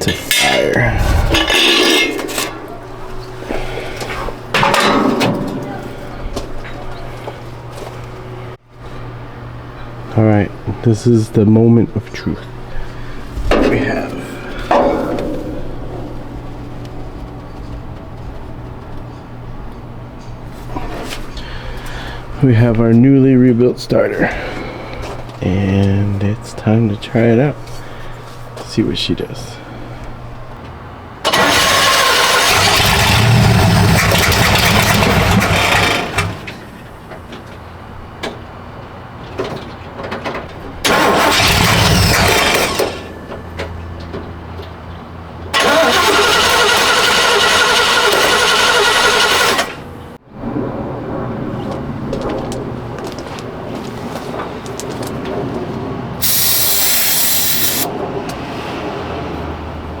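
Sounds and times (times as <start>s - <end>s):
starter cranking engine: 31.3s - 36.6s, 40.9s - 43.1s, 45.6s - 49.9s, 56.2s - 57.9s
short hiss: 56.2s - 57.9s.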